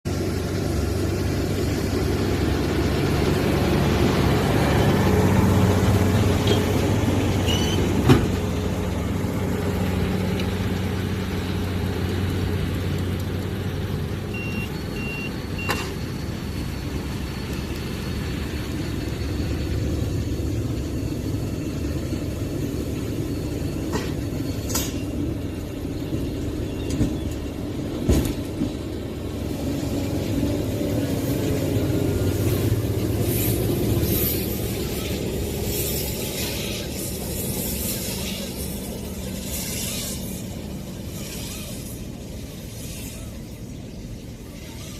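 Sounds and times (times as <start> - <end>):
tractor engine running: 0.0 - 44.9
short beeps: 14.3 - 16.0.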